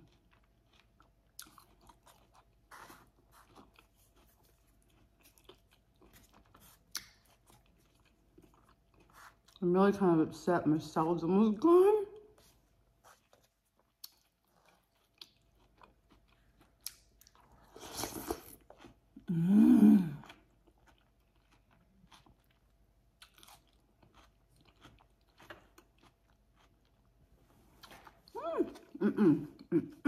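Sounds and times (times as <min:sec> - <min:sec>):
wet chewing: 0:00.0 - 0:09.6, 0:12.3 - 0:19.3, 0:20.0 - 0:27.2
person humming mm: 0:19.3 - 0:20.3.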